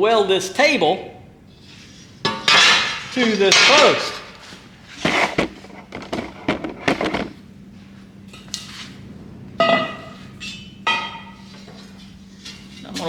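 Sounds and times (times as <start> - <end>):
faint steady hum: 0.0 - 13.0
steel parts knocking and clanking: 5.0 - 7.4.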